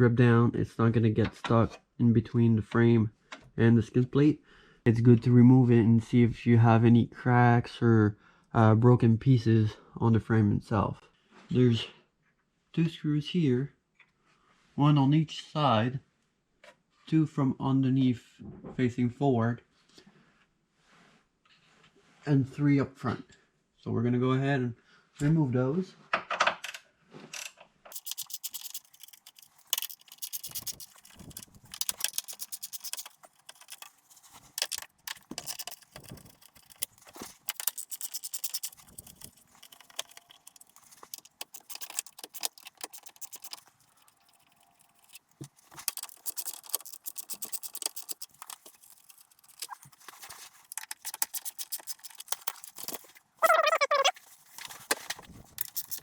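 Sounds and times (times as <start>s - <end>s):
ratchet wrench clicking: 27.9s - 33.9s, 34.6s - 49.8s, 50.7s - 53.0s, 55.6s - 56.0s
metal tools clinking and scraping: 27.9s - 56.0s.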